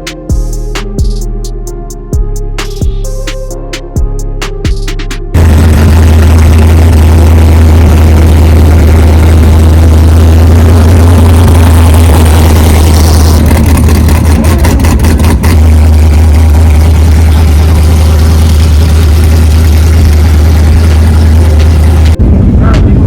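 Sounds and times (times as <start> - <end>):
motorcycle engine running: 4.0 - 23.0
wind rumble on microphone: 21.9 - 23.0.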